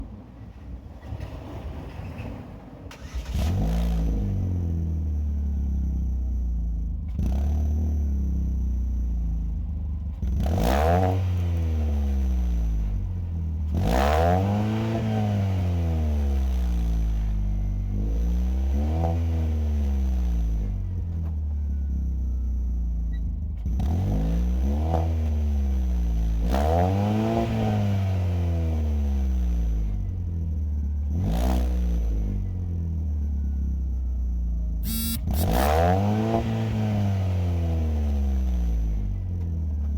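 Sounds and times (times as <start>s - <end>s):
car exhaust idling and revving: 3.4s - 39.9s
sharp clicks: 34.8s - 35.6s.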